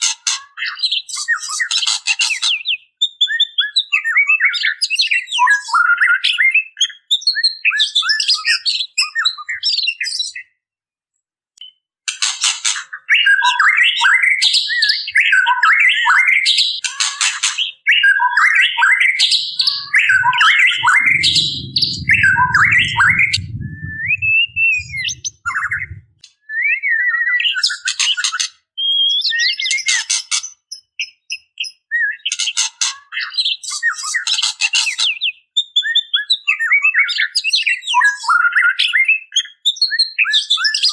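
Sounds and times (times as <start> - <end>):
bird calling with chirps and whistles: 12.9 - 28.2
low rumble: 19.6 - 26.2.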